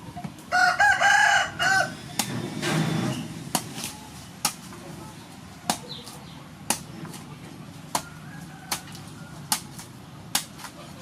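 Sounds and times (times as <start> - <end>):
faint chickens clucking: 7.3 - 10.2.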